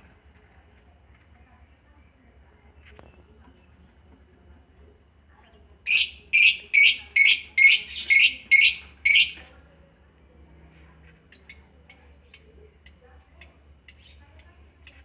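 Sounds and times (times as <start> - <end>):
lovebirds harsh calls: 5.9 - 9.4
lovebirds sharp chirps: 5.9 - 9.4.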